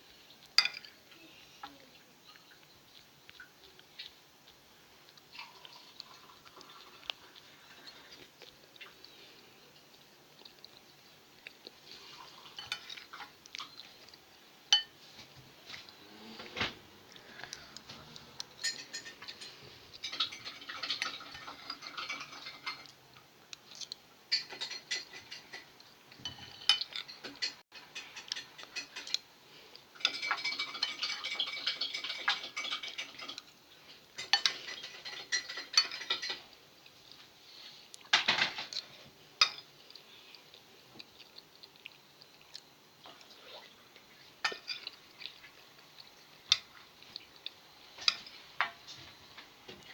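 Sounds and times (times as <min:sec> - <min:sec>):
dishes and cutlery clinking: 0:00.5 - 0:01.0, 0:12.2 - 0:13.8, 0:14.7 - 0:15.9, 0:18.1 - 0:23.0, 0:24.3 - 0:29.2, 0:30.0 - 0:33.5, 0:34.2 - 0:36.5, 0:38.1 - 0:39.7, 0:44.4 - 0:45.4, 0:48.0 - 0:49.9.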